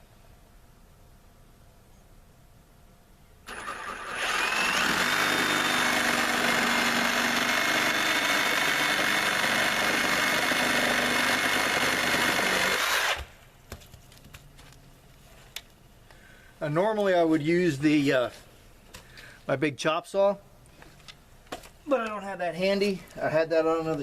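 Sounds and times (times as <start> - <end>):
reciprocating saw cutting wood: 3.5 - 13.3.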